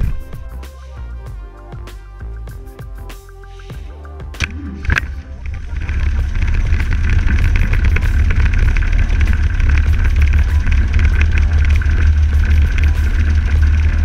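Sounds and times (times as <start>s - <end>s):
engine running with deep rumble: 4.2s - 14.0s.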